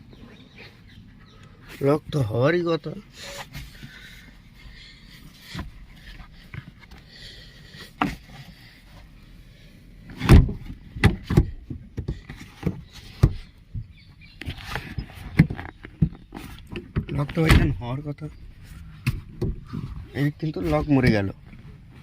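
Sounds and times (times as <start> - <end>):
seat lock clicking and knocking: 10.1 - 14.6, 15.3 - 17.9, 19.0 - 19.7.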